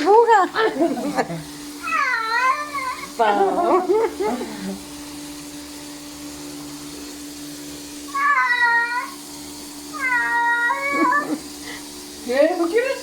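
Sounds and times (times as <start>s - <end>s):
cat meowing: 1.8s - 3.2s, 8.1s - 9.2s, 9.9s - 11.4s.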